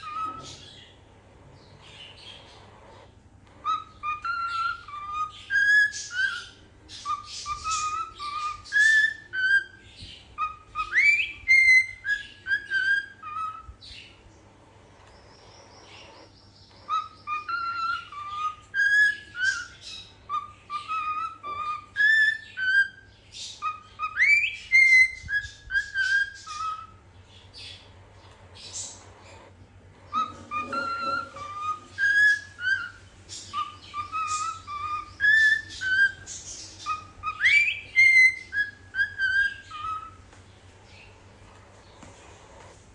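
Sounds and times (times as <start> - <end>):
cockatiel whistling a tune: 0.0 - 0.7, 3.5 - 13.8, 16.0 - 27.0, 30.0 - 40.2.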